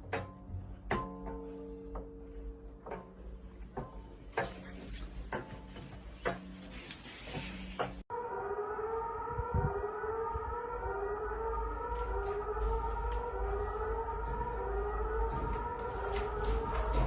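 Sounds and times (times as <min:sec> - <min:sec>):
warning siren wailing: 0:08.0 - 0:17.0
low rumble on microphone: 0:09.0 - 0:17.0.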